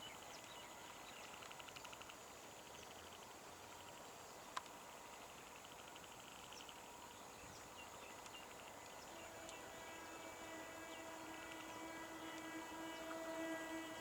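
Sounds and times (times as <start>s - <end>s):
electric train humming: 9.0s - 14.0s.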